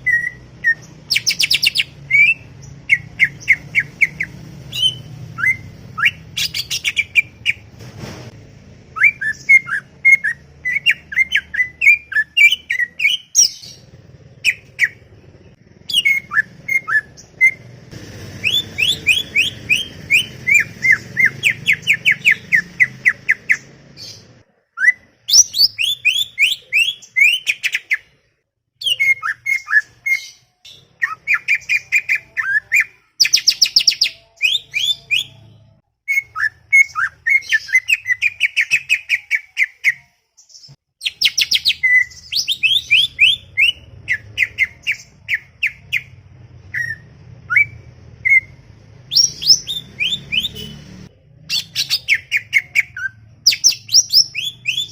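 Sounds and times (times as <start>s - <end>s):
bird chattering song: 0.0s - 7.6s, 9.0s - 17.7s, 18.4s - 24.4s, 51.4s - 54.9s.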